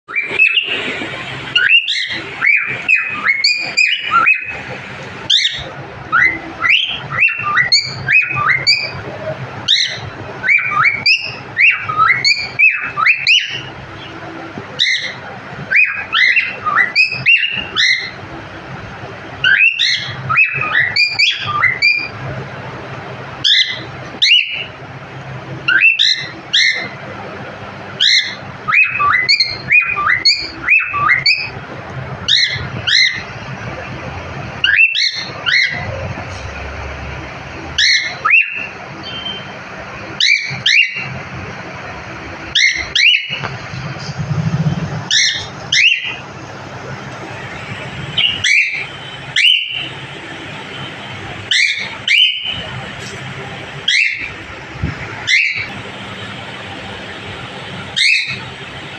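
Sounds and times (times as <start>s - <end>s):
cockatiel chirping and whistling: 0.1s - 0.8s, 1.6s - 4.6s, 5.3s - 9.0s, 9.7s - 13.7s, 14.8s - 18.2s, 19.4s - 22.1s, 23.4s - 24.7s, 25.7s - 26.9s, 28.0s - 31.5s, 32.3s - 33.2s, 34.6s - 35.8s, 37.8s - 39.4s, 40.2s - 41.1s, 42.5s - 43.4s, 45.1s - 46.2s, 48.2s - 49.9s, 51.5s - 52.6s, 53.9s - 54.3s, 55.3s - 55.7s, 58.0s - 58.4s.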